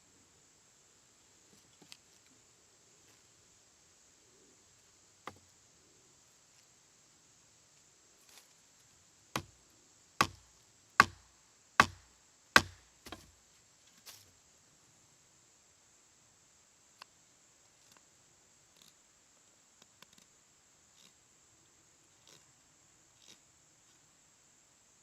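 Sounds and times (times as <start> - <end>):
sharp strikes on wood: 5.2 - 5.5, 9.3 - 9.6, 10.2 - 13.3.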